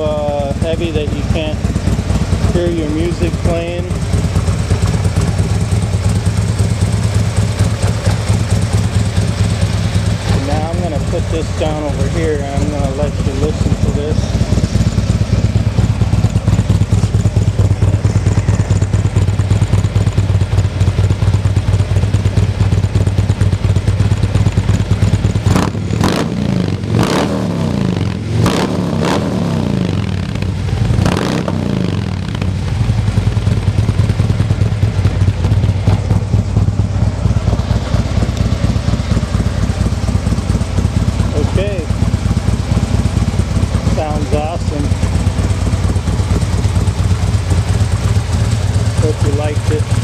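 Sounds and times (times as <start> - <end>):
motorcycle engine idling: 0.0 - 50.0
motorcycle throttle blips: 0.0 - 50.0.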